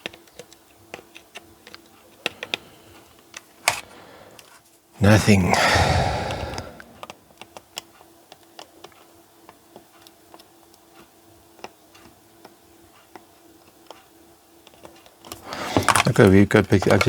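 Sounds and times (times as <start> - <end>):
faint plastic clicks and taps: 0.0 - 3.4, 7.0 - 17.0
faint steady hum: 5.0 - 7.4.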